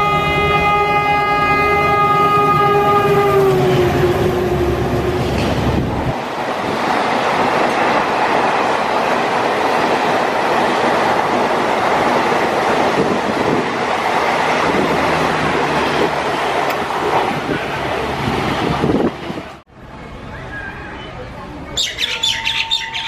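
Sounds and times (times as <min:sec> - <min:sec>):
train wheels on rails: 0:02.3 - 0:19.6.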